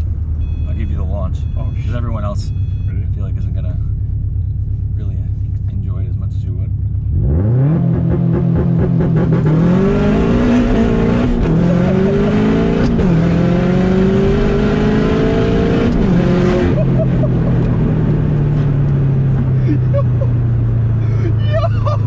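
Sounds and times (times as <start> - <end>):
car engine accelerating hard: 5.6 - 22.0.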